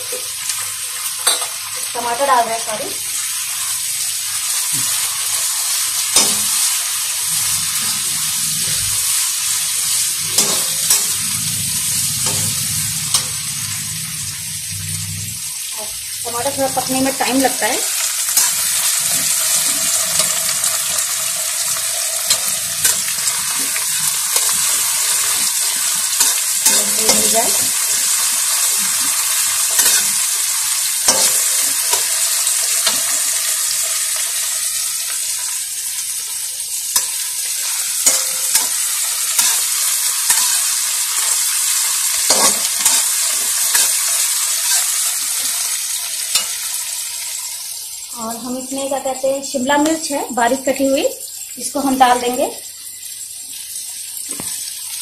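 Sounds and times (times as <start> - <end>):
onion and tomato sizzling in oil: 0.0 - 55.0
spatula scraping a pan: 6.0 - 14.3, 18.2 - 34.4, 37.0 - 46.8.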